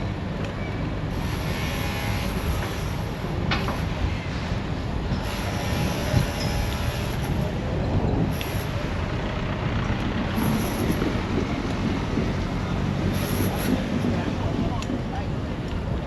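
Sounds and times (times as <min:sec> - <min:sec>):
motor vehicle rumble: 0:00.0 - 0:16.0.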